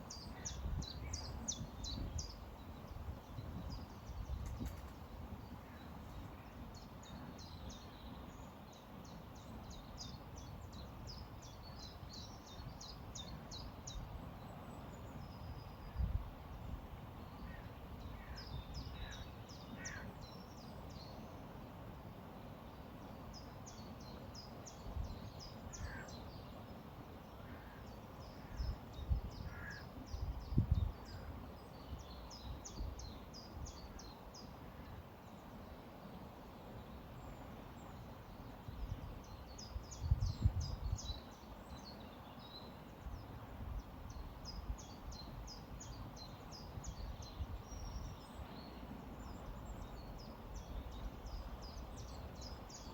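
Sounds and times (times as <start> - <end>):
small birds chirping: 0.0 - 16.1.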